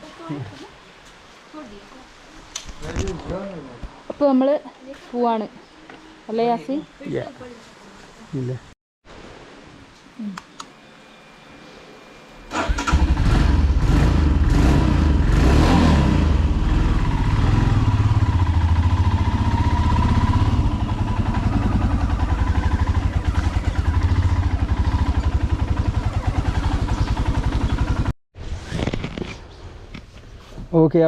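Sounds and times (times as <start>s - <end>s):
motorcycle engine starting and idling: 12.4s - 28.1s.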